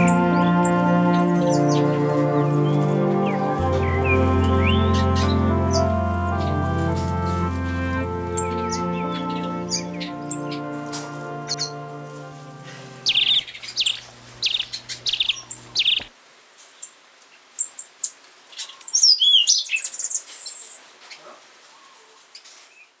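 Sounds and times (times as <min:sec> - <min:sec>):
background music: 0:00.0 - 0:13.4
songbirds chirping and singing: 0:00.0 - 0:16.1.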